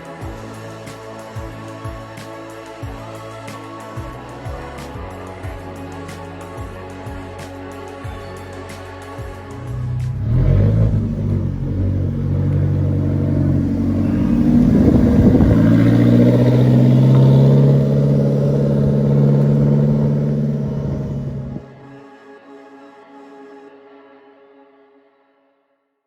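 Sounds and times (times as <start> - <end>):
performance car engine and exhaust: 9.4 - 21.9.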